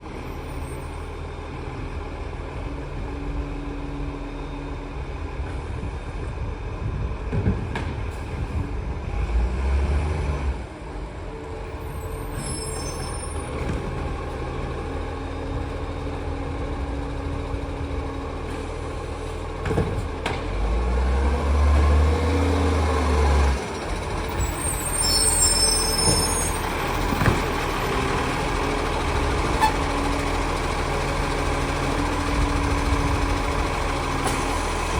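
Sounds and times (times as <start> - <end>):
diesel engine running: 13.4 - 34.9.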